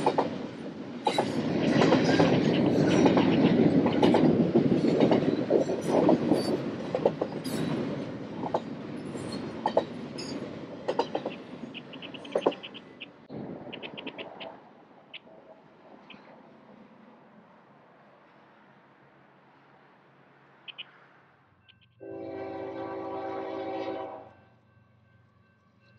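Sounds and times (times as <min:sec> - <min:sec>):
wheels clicking over rail joints: 0:00.0 - 0:15.4
freight train rolling past: 0:00.0 - 0:25.9
wheel squeals and creaks: 0:08.5 - 0:13.2.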